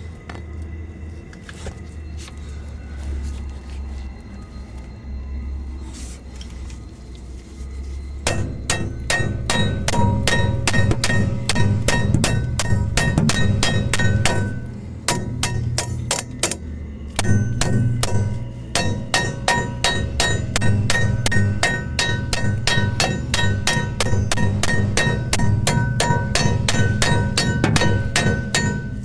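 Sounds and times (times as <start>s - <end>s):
hammer striking metal: 8.2s - 29.0s.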